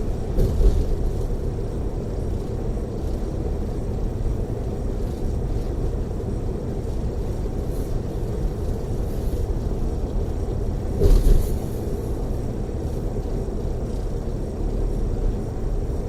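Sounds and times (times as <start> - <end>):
coach engine rumble: 0.0 - 16.0
thump: 11.0 - 11.6.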